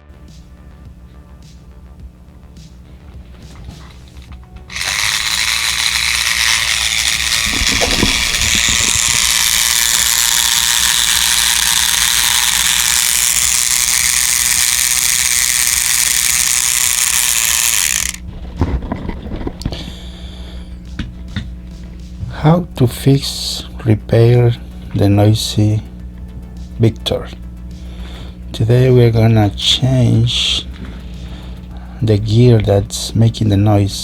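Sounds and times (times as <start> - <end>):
toy motor grinding rattle: 3.2 - 20.0
small clicks: 3.4 - 18.2.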